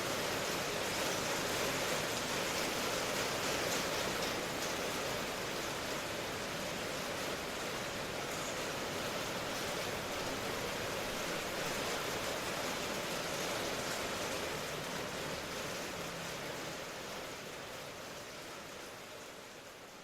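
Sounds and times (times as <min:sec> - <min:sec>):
dense rain hiss: 0:00.0 - 0:20.0.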